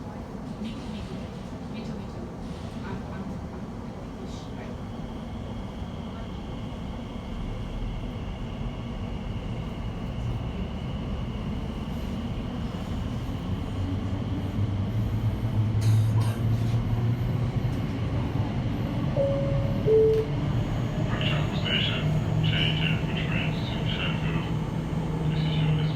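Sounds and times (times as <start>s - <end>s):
train interior running noise: 0.0s - 25.9s
short two-tone chime: 19.2s - 20.3s.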